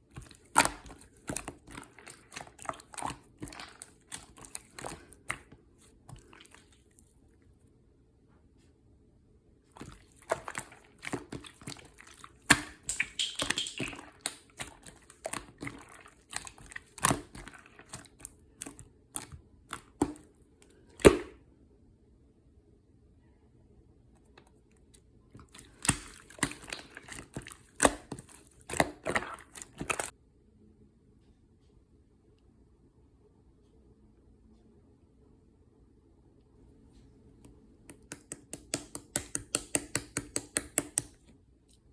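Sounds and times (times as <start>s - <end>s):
slime squishing with sticky clicks: 0.0s - 6.9s, 9.8s - 21.4s, 24.2s - 30.1s, 37.4s - 41.4s.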